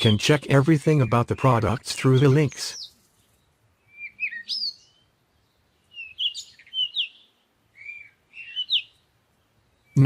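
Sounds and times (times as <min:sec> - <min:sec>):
small bird chirping: 0:02.2 - 0:10.0.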